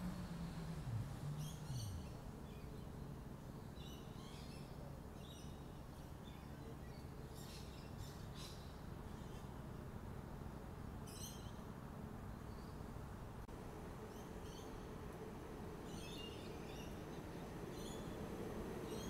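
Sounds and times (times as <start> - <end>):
low hum sliding downward: 0.0 - 2.4
small birds chirping: 0.1 - 9.5, 14.0 - 14.9, 15.8 - 19.0.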